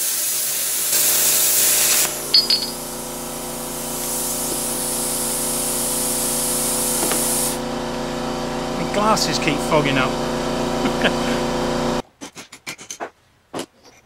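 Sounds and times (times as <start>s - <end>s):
plasma cutter hissing: 0.0s - 2.3s, 3.8s - 7.6s
steady machine hum: 2.0s - 12.0s.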